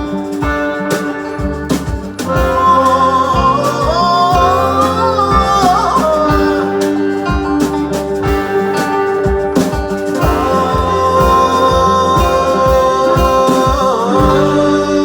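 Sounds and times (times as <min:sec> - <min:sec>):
low beats: 0:00.0 - 0:15.0
plucked guitar: 0:00.0 - 0:15.0.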